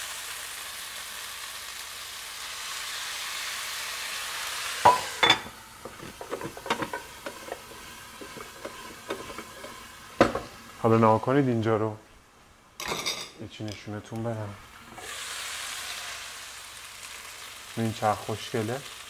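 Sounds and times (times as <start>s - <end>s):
chicken sizzling in hot oil: 0.0s - 11.0s, 14.3s - 19.0s
glass lid clinking on pan: 4.9s - 5.5s
pan and lid knocking: 4.9s - 10.5s.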